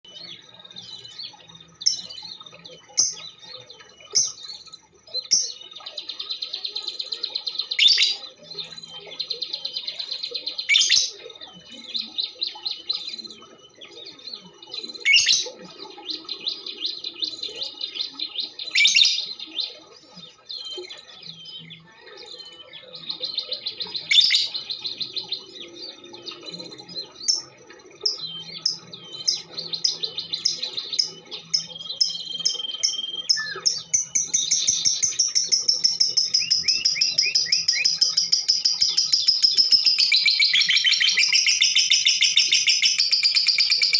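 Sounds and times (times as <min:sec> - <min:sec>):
sharp bird calls: 0:00.0 - 0:43.9
lovebird chattering trills: 0:26.6 - 0:43.9.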